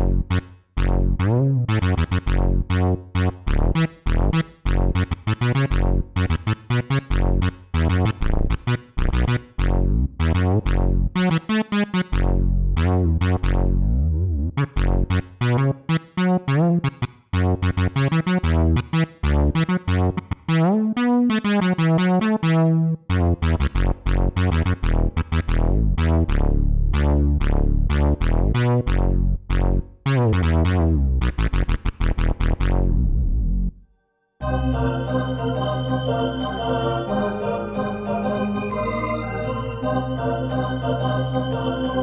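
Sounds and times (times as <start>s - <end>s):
synthesizer playing plucky notes: 34.4s - 42.0s.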